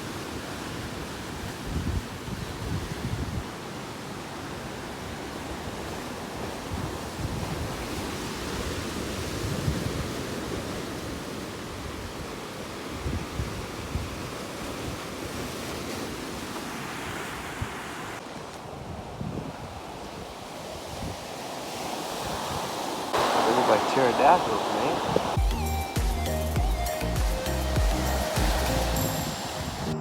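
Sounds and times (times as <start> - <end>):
ocean surf on rocky shore: 0.0 - 25.4, 26.9 - 30.0
wind buffeting microphone: 18.7 - 25.4.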